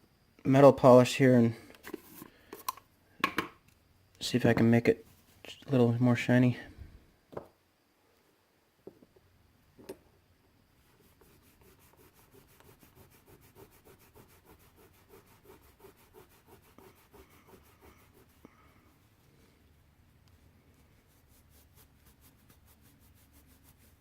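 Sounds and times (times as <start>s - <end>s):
rubbing polish on brass: 10.8s - 18.6s, 20.8s - 24.0s.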